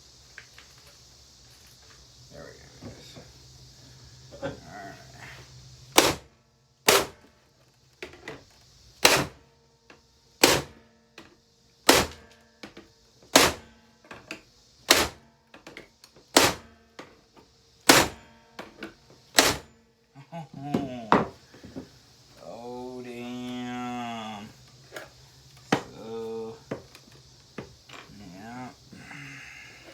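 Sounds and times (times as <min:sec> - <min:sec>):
hammer striking vacuum casing: 0:06.9 - 0:07.2.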